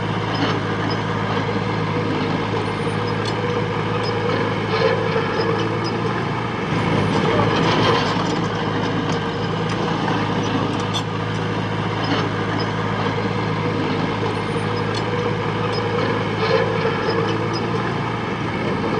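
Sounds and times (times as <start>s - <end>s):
diesel engine running steadily: 0.0s - 18.9s.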